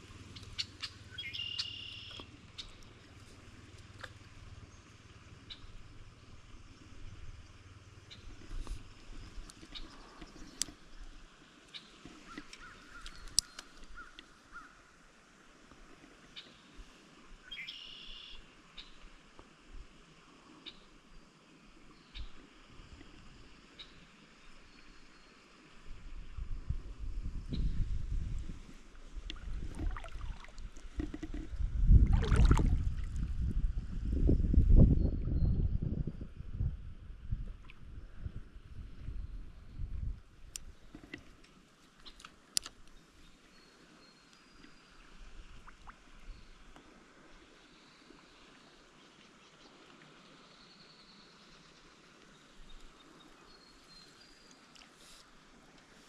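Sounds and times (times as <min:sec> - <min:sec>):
birds chirping: 0:00.4 - 0:02.9
water splashing and sloshing: 0:02.1 - 0:14.4, 0:28.4 - 0:33.5, 0:44.6 - 0:46.2
low uneven rumble: 0:02.3 - 0:11.1, 0:26.7 - 0:35.3.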